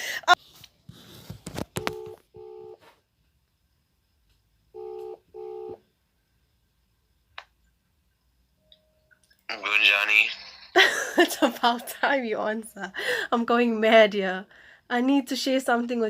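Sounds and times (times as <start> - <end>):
phone ringing tone: 1.8 - 2.8, 4.8 - 5.8.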